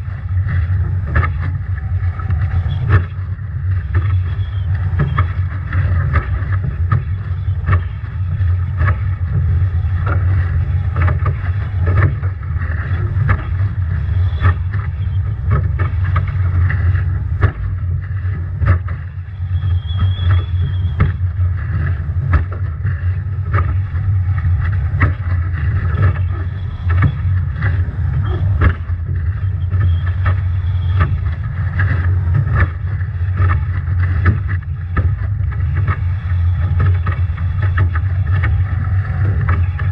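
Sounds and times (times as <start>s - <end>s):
rushing water: 0.0s - 39.9s
waves slapping against boat: 0.0s - 39.9s
wind rumble on microphone: 0.0s - 39.9s
faint high whistle: 4.2s - 5.2s, 19.4s - 21.0s.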